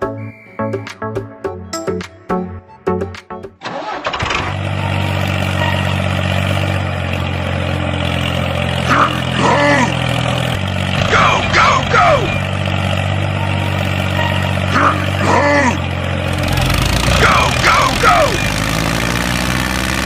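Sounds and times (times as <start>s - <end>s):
voices calling out: 4.7s - 18.7s.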